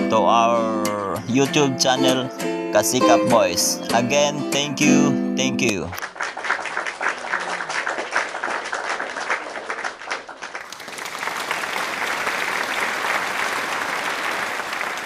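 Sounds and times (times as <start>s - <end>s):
crowd applause: 6.0s - 15.0s.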